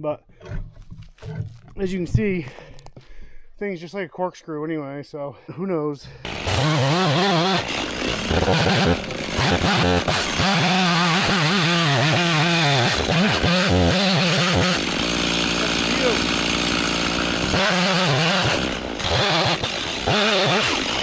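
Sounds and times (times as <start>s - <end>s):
chainsaw cutting log: 6.2s - 21.0s.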